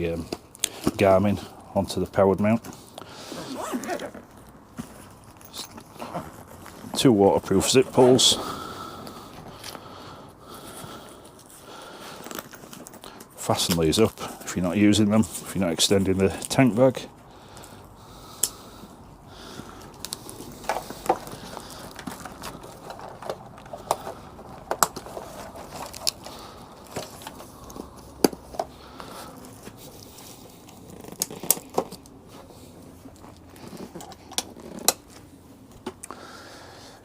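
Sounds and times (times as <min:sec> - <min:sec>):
velcro strips crackling: 0:19.4 - 0:35.3.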